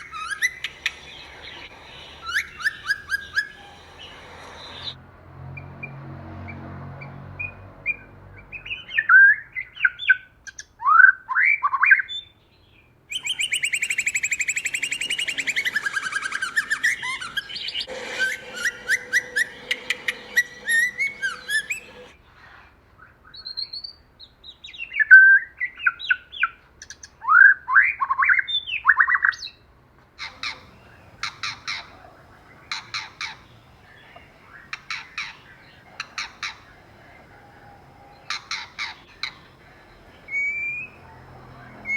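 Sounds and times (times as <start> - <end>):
bird harsh chattering: 0.0 - 5.0, 13.2 - 22.1, 30.2 - 41.9
bird sharp clicking calls: 0.0 - 5.0, 13.2 - 22.1, 30.2 - 41.9
bird whistling song: 0.0 - 5.0, 13.1 - 22.1, 30.2 - 41.9.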